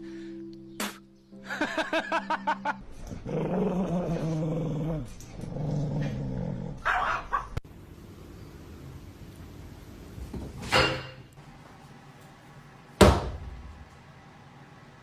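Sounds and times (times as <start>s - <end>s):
dog growling: 3.0s - 7.4s.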